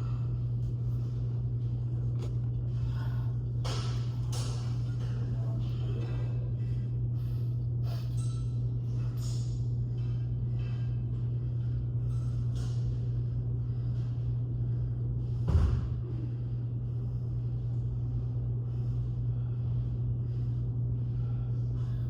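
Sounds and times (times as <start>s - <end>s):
steady low hum: 0.0s - 22.0s
heavy thud: 15.4s - 16.0s.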